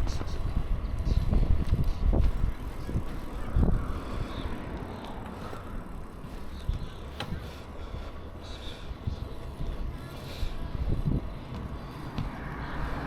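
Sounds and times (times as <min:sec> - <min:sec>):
wind and road rumble: 0:00.0 - 0:13.0.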